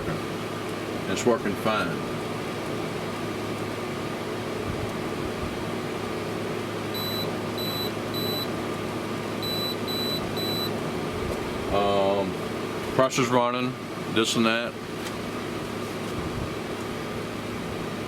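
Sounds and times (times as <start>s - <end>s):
air conditioner humming: 0.0s - 18.0s
short high electronic beeps: 7.0s - 8.4s, 9.4s - 10.7s.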